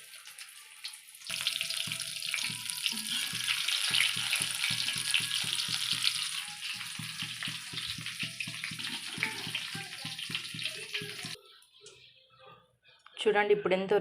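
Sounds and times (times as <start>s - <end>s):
chillies deep-frying in oil: 0.0s - 11.4s.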